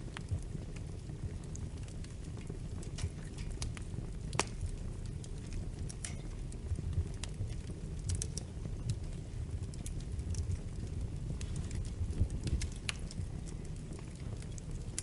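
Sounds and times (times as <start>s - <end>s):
fire crackling and popping: 0.0s - 15.0s
fire rumbling: 0.0s - 15.0s.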